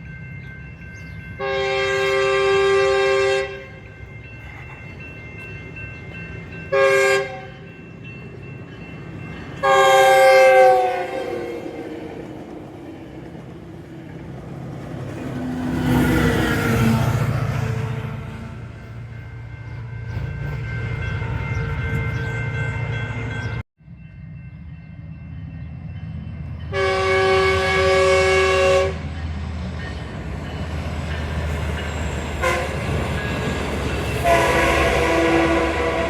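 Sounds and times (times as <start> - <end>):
train locomotive rumbling past: 0.0 - 36.0
train air horn blast: 1.4 - 3.8, 6.7 - 7.5, 9.6 - 11.8, 26.7 - 29.1, 32.4 - 32.8, 34.2 - 36.0.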